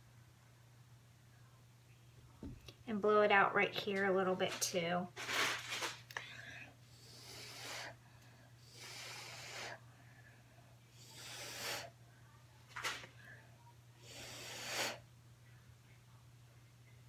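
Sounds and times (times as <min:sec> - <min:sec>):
short bursts of blown air: 0:07.0 - 0:08.0, 0:08.6 - 0:09.8, 0:11.0 - 0:11.9, 0:14.0 - 0:15.0.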